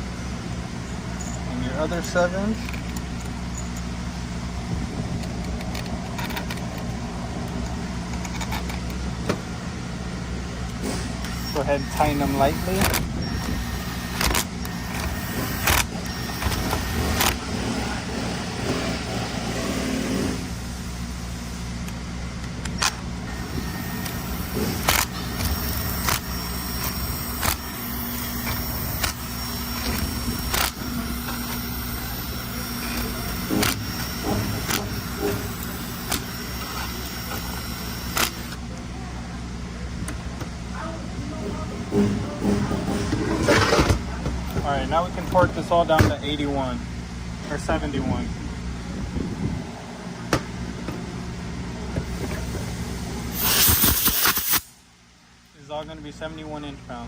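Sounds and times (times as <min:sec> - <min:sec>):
steady low hum: 0:00.0 - 0:57.0
hand tools clicking on metal: 0:24.0 - 0:32.0.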